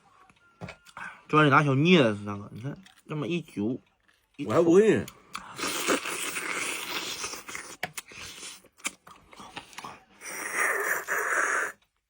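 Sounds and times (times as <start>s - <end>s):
person chewing and sucking: 5.3s - 12.0s.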